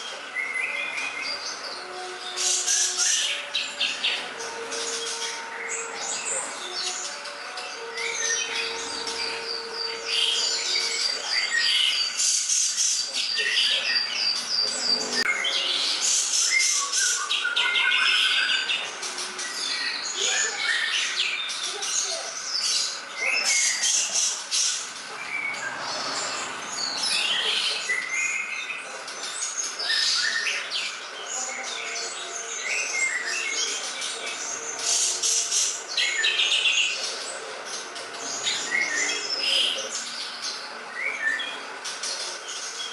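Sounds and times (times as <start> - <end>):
bird singing chirps and whistles: 0.4 - 18.9, 31.7 - 37.0.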